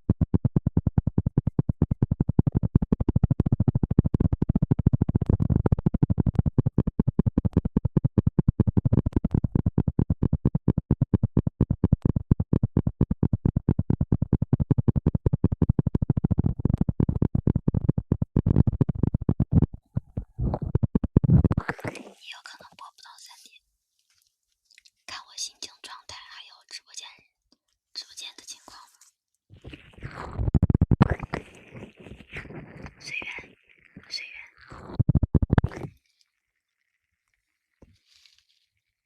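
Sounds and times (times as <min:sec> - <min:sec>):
scratching on microphone: 0:00.1 - 0:23.3, 0:28.2 - 0:36.0.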